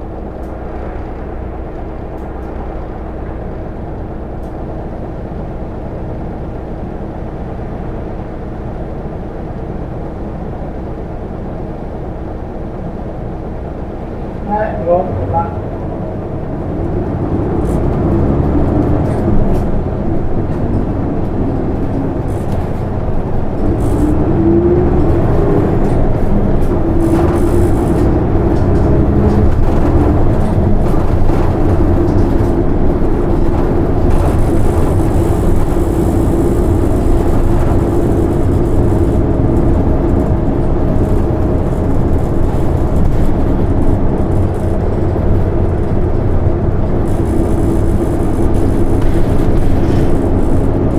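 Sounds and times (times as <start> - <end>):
diesel bus engine accelerating: 0.0 - 50.9.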